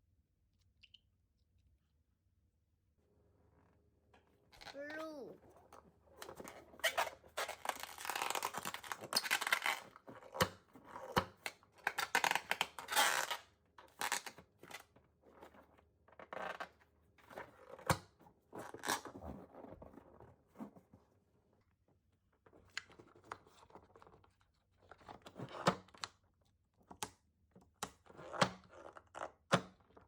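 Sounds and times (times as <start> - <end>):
scratchy tearing and rustling: 6.8 - 9.9.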